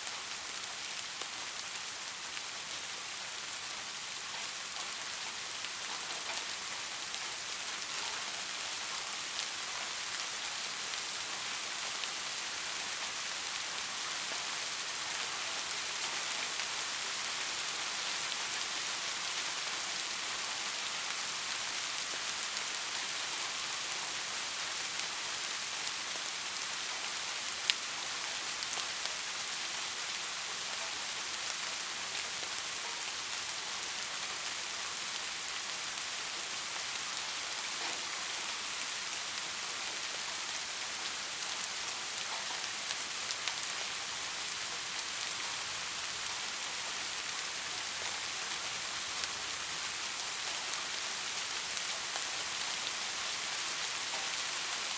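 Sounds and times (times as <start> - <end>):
steady rain falling: 0.0 - 54.9
raindrop ticks: 25.0 - 34.6.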